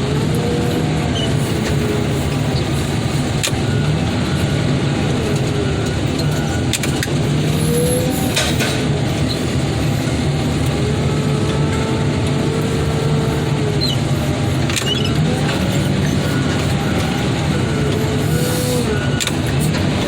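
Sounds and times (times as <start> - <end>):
heavy machine engine running: 0.0 - 20.0
whine rising and falling in pitch: 3.6 - 19.5.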